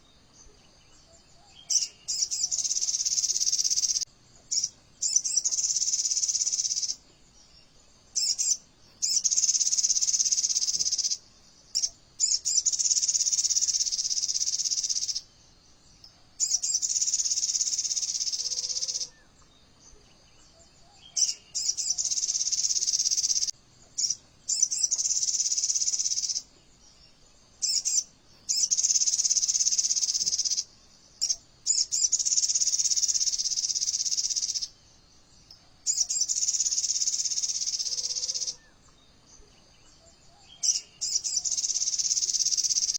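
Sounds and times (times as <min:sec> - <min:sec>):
bird high-pitched trills: 0:16.4 - 0:19.2, 0:35.8 - 0:38.7.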